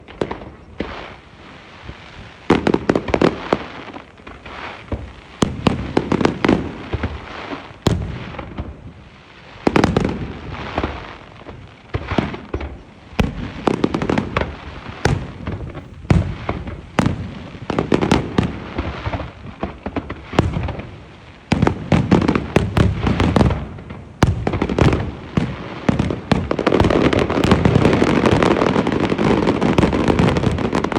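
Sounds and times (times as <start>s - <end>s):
fireworks bangs and crackling: 0.0s - 30.9s.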